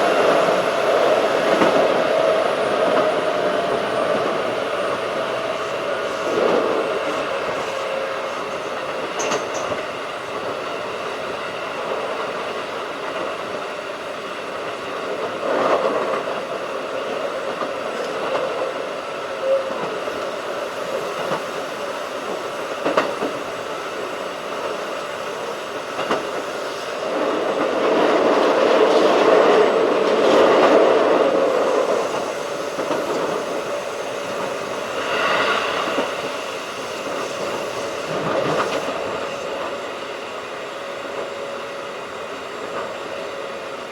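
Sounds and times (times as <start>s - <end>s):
train wheels rumbling on rail: 0.0s - 43.9s.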